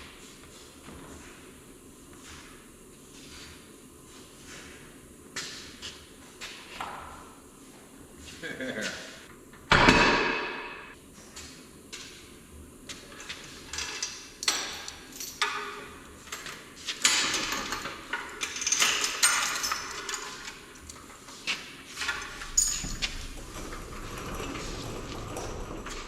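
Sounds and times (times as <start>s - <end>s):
knocks and clanks of parts: 9.6s - 11.0s, 13.1s - 26.0s
scraping on floor: 21.4s - 26.0s.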